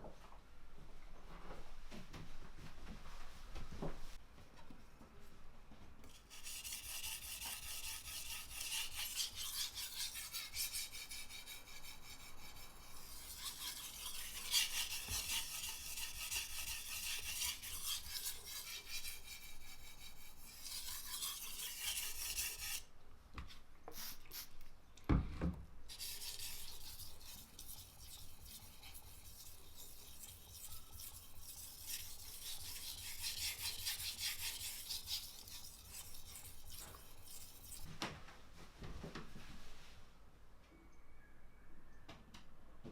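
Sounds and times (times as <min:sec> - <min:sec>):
knife scraping on whetstone: 0:06.1 - 0:22.8, 0:25.9 - 0:37.9.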